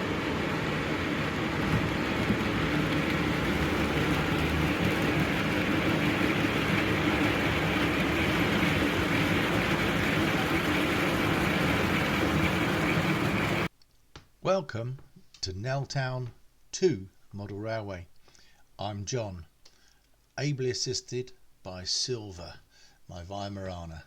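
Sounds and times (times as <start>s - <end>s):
faint hum: 0.0s - 13.7s
train running: 0.0s - 13.7s.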